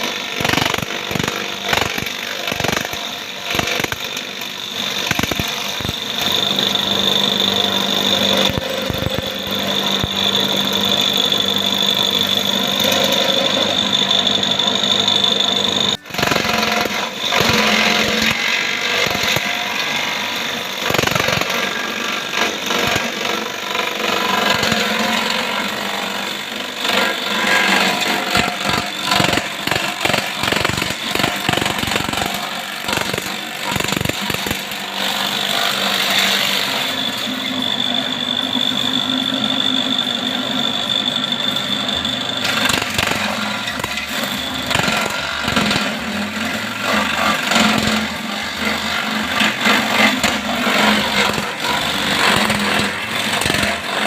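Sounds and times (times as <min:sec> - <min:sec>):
electric grass chopper running: 0:00.0 - 0:54.0
high whine: 0:00.2 - 0:23.6.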